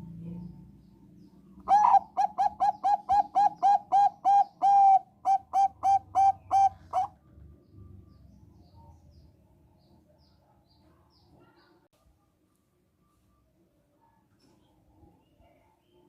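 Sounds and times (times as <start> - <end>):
dove cooing: 1.6 - 7.2.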